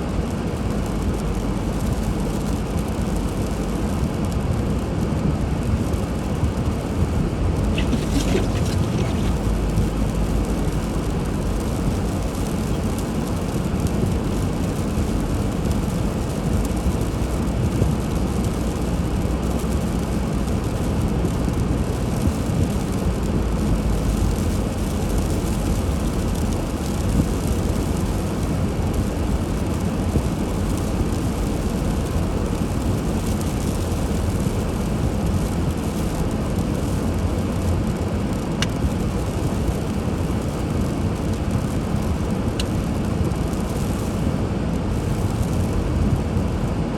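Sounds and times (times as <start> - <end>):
car engine and tyre rumble: 0.0 - 46.9.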